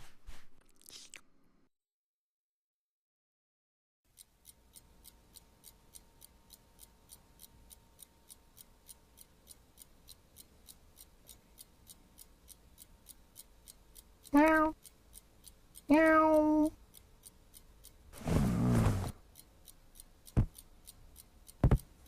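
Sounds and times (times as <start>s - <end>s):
clock ticking: 4.1s - 18.4s, 19.0s - 22.0s.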